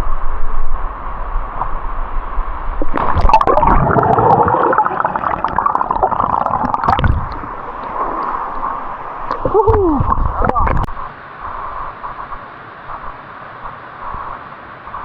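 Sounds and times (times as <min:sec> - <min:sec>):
sudden splash: 0:02.8 - 0:10.4
water splashing and gurgling: 0:02.8 - 0:10.9.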